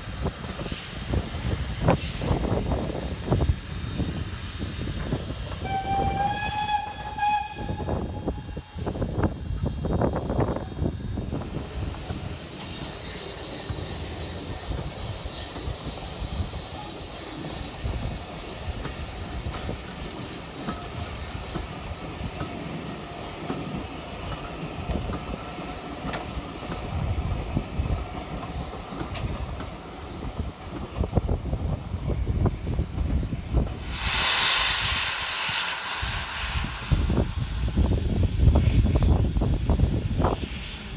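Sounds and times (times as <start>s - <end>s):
wheel squeal: 0.0s - 18.1s
train wheels clicking over rail joints: 0.0s - 32.0s
steam hissing: 0.0s - 40.9s.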